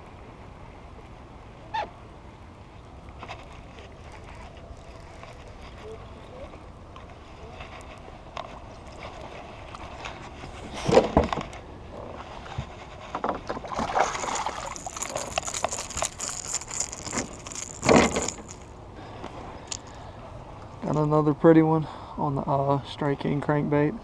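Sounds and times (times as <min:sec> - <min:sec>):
loud water splashes: 0:13.7 - 0:15.4.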